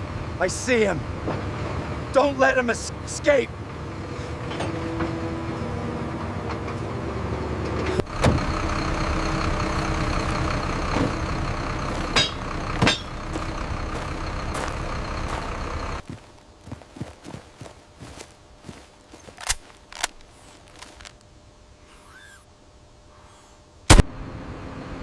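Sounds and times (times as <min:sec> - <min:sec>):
heavy vehicle engine running: 0:00.0 - 0:21.2, 0:23.9 - 0:25.0
sharp knocks: 0:12.2 - 0:13.1.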